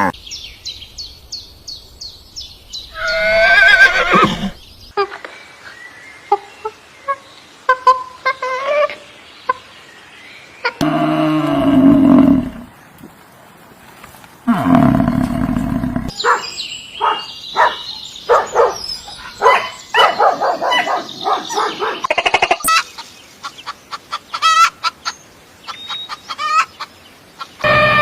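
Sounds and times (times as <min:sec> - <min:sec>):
deep animal roars: 0:10.8 - 0:12.7, 0:14.5 - 0:16.1.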